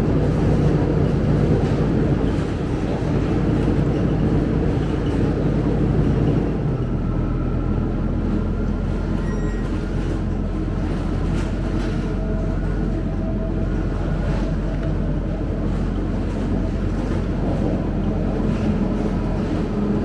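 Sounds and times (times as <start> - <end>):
bus engine running: 0.0 - 20.0.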